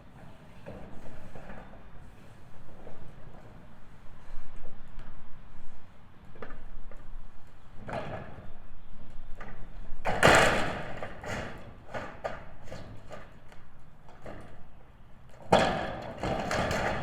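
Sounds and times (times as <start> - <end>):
knocks and clatter on metal roof: 7.8 - 8.5, 9.4 - 17.0
metal roofing rattling: 10.0 - 13.3, 15.5 - 17.0.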